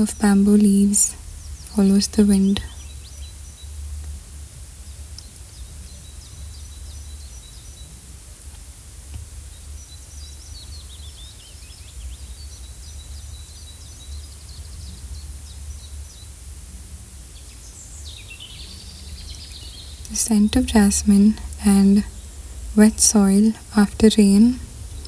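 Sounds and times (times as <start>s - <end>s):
small birds chirping: 17.3s - 25.0s
steady low rumble: 19.9s - 25.0s.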